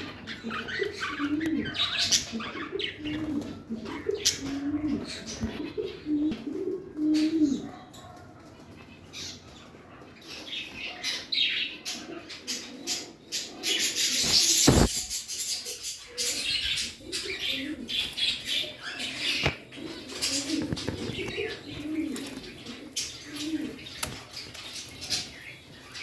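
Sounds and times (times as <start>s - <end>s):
scratching: 14.0s - 26.0s
loud rustling flurry: 14.1s - 15.4s.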